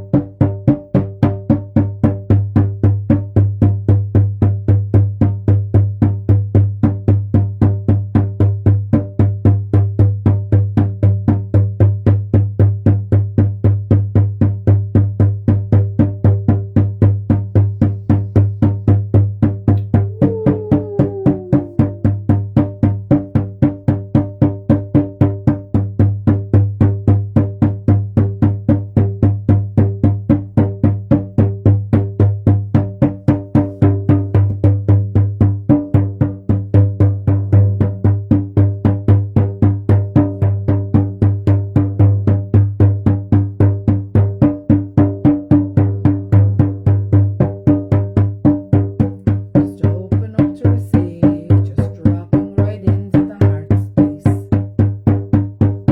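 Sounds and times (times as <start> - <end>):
hand drum booming: 14.0 - 55.9.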